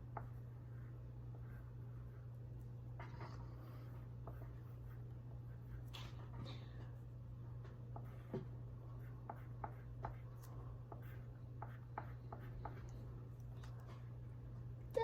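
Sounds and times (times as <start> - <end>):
faint low hum: 0.0 - 15.0
drawing tool scratching paper: 0.1 - 2.3, 3.0 - 5.9, 8.0 - 12.9.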